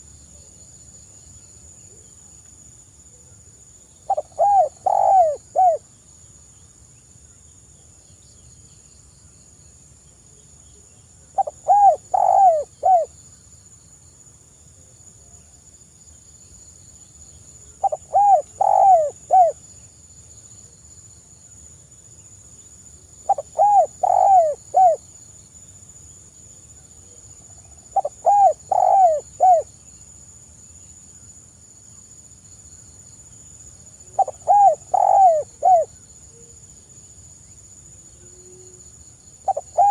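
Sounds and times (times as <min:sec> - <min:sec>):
dove cooing: 0:04.1 - 0:05.8, 0:11.4 - 0:13.1, 0:17.8 - 0:19.6, 0:23.3 - 0:25.0, 0:27.9 - 0:29.7, 0:34.1 - 0:35.9, 0:39.5 - 0:39.9.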